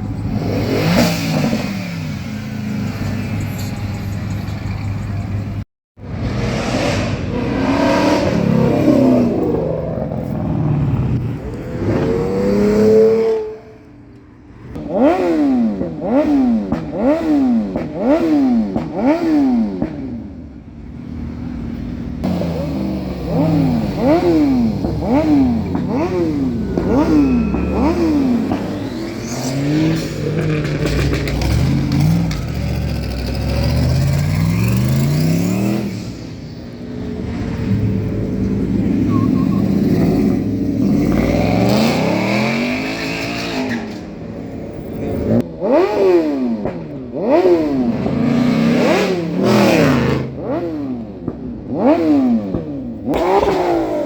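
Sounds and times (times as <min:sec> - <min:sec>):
car engine revving: 0:00.0 - 0:03.4, 0:06.0 - 0:13.9, 0:22.2 - 0:54.0.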